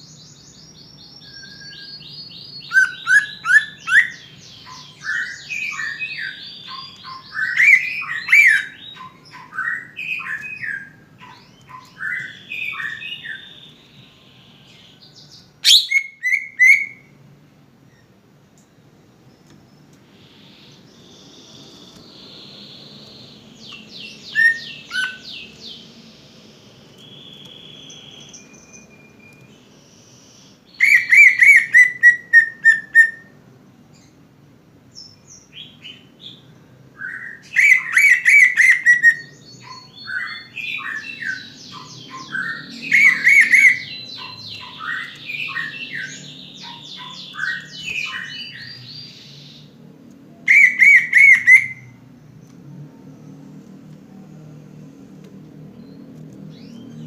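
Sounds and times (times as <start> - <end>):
bird whistles and chirps: 1.2 - 13.7, 15.6 - 17.1, 23.7 - 25.4, 30.8 - 33.3, 37.0 - 49.8, 50.5 - 52.0
bird song rapid repeated notes: 37.4 - 49.7.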